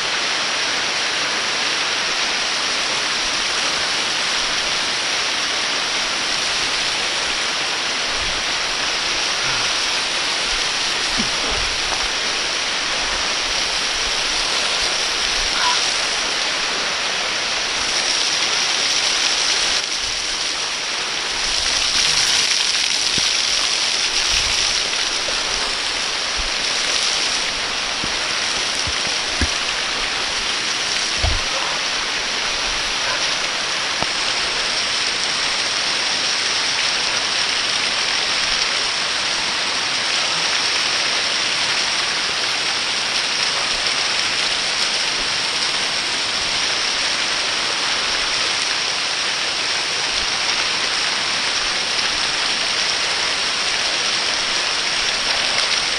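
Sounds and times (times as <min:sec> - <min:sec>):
waterfall roaring: 0:00.0 - 0:55.9
low thumps: 0:27.4 - 0:31.6.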